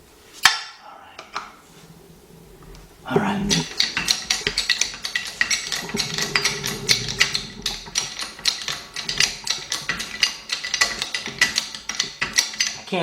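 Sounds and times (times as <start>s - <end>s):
hand tools tapping on metal: 2.6s - 13.0s.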